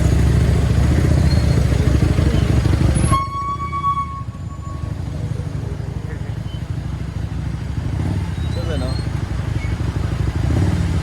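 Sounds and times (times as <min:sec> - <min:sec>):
motorcycle engine: 0:00.0 - 0:11.0
vehicle horn: 0:03.0 - 0:05.0.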